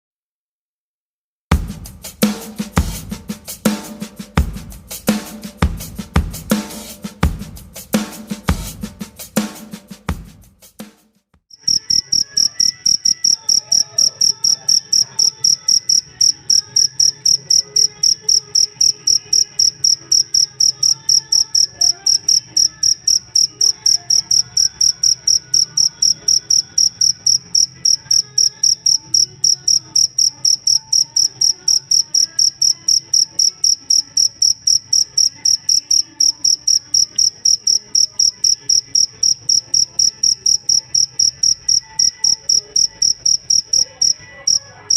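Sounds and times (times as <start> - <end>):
cricket chirping: 11.5 - 44.6.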